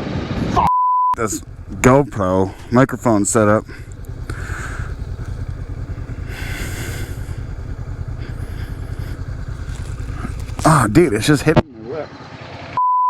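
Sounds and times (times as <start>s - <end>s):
motorcycle engine rumble: 1.2s - 12.7s
wind buffeting microphone: 1.4s - 11.5s.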